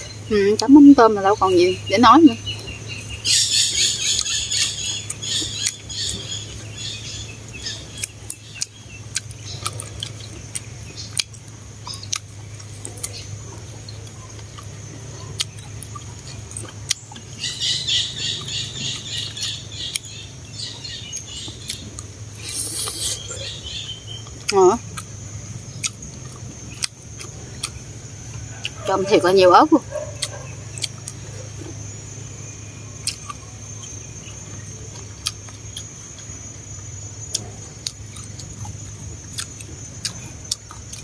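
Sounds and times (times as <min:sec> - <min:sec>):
birds chirping: 0:00.0 - 0:41.0
steady low hum: 0:00.0 - 0:41.0
chewing with mouth clicks: 0:07.6 - 0:28.9, 0:29.8 - 0:32.2, 0:33.0 - 0:41.0.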